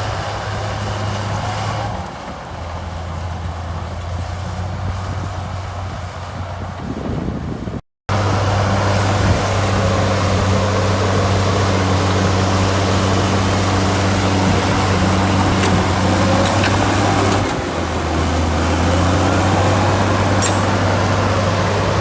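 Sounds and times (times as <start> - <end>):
heavy diesel engine running: 7.4 - 22.0.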